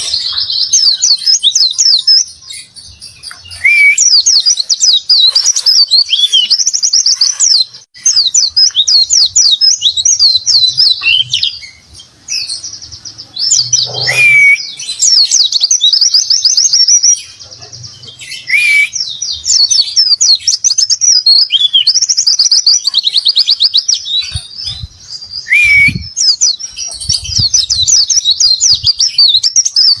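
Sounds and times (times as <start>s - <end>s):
bird warbling song: 0.0s - 30.0s
down-slurred whistles: 3.4s - 4.5s, 13.6s - 14.8s, 18.3s - 19.1s, 25.4s - 26.4s.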